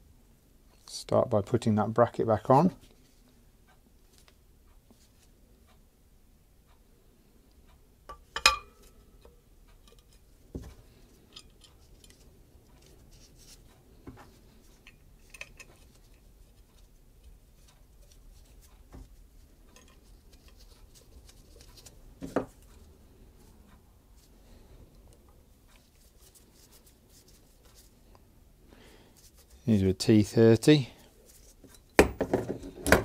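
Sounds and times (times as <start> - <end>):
metal tools clinking: 11.2 - 12.2.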